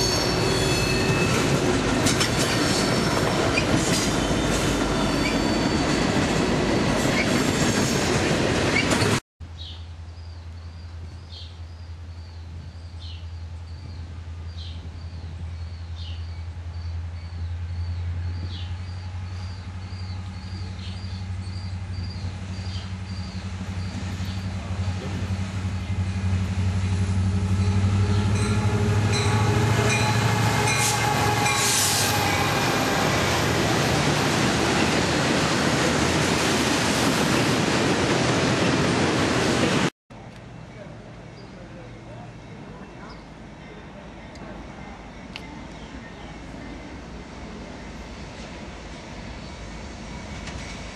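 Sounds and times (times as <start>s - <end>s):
diesel locomotive engine drone: 0.0s - 9.2s, 10.0s - 50.9s
freight train rolling past: 0.0s - 9.2s, 13.3s - 50.9s
high squeal: 5.0s - 5.9s.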